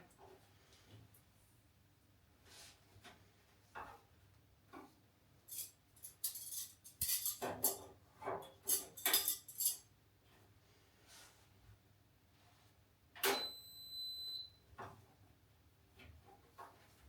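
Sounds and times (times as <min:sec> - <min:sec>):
metallic clattering and jingling: 0:05.5 - 0:07.8, 0:08.6 - 0:09.8.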